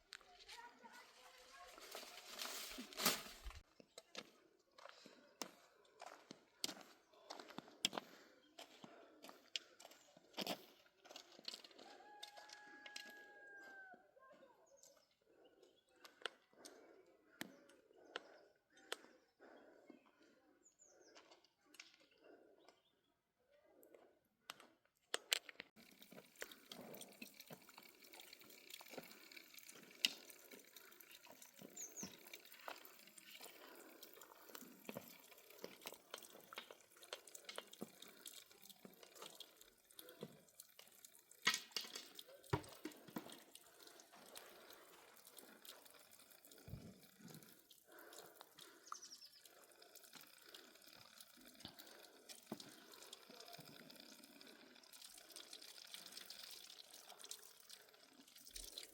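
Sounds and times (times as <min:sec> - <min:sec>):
water dripping and splashing: 0:25.8 - 0:58.9.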